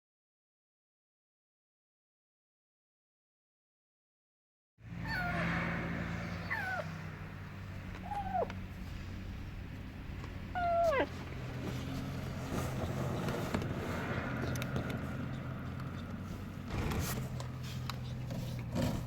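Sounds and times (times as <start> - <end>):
kitten meowing: 5.0 - 5.4, 6.4 - 7.0, 8.0 - 8.6, 10.5 - 11.2.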